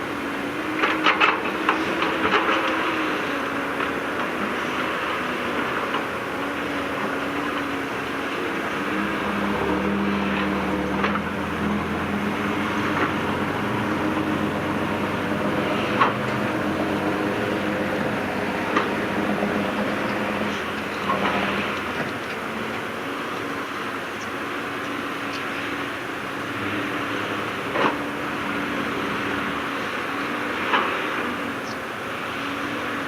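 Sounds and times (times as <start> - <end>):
heavy machinery diesel engine: 0.0 - 33.0.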